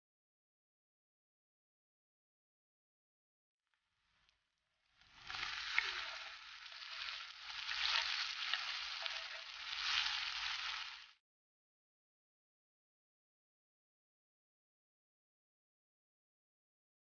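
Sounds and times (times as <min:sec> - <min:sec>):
vegetables sizzling in hot oil: 0:05.0 - 0:11.2.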